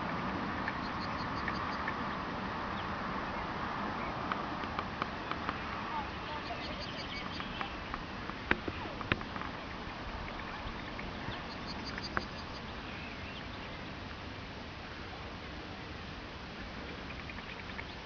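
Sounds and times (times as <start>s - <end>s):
outdoor hiss: 0.0s - 18.0s
songbird calling: 0.4s - 4.3s, 5.0s - 8.0s, 8.6s - 14.0s, 16.8s - 18.0s.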